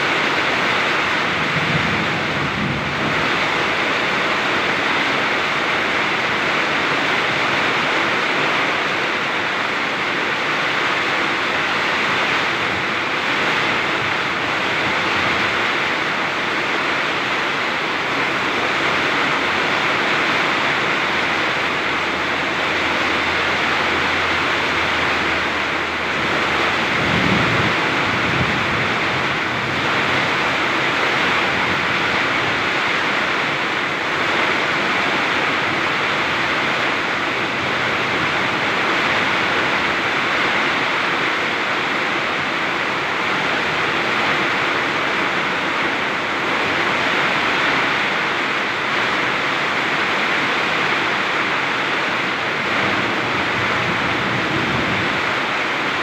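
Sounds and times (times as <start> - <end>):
heavy rain in wind: 0.0 - 56.0
low rumble: 21.1 - 31.9.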